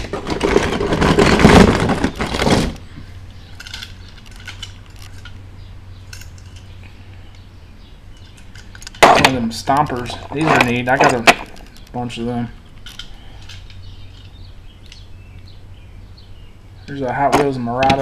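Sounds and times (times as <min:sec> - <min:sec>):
toy cars clattering together: 0:00.0 - 0:02.8, 0:03.5 - 0:05.4, 0:08.2 - 0:11.9.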